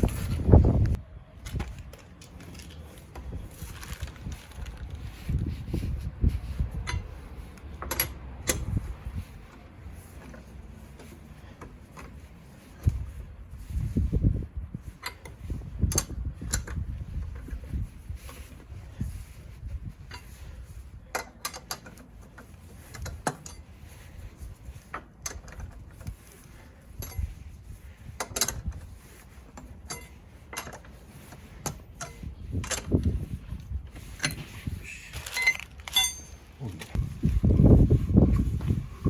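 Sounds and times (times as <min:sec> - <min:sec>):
metallic clinks of hand tools: 0:35.3 - 0:36.4.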